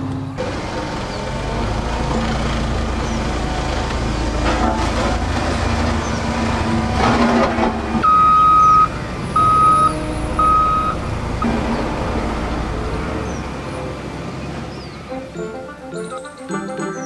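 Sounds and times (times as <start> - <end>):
loud electronic beeps: 8.1 - 11.0.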